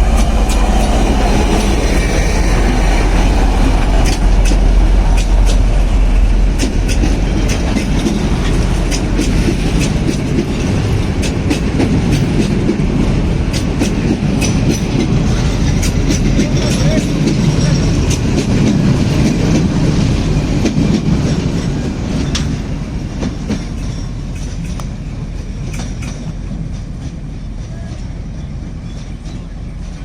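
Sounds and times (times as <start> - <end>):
train rumbling on rails: 0.0 - 30.0
wheels clicking over rail joints: 6.6 - 19.7.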